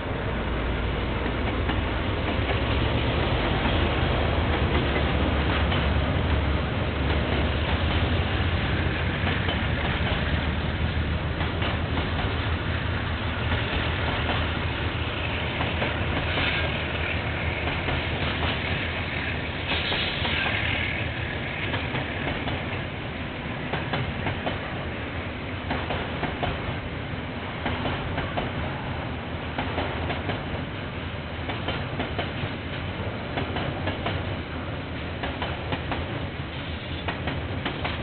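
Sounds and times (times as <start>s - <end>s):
freight train rumbling: 0.0s - 38.0s
wheels clacking over rail joints: 1.2s - 24.9s, 25.6s - 26.8s, 31.4s - 34.4s.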